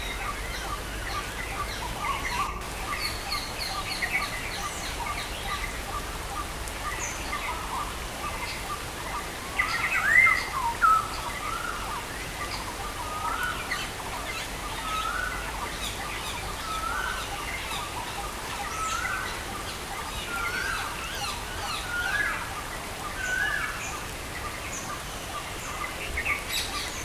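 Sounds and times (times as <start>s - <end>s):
rain hissing: 2.6s - 9.6s.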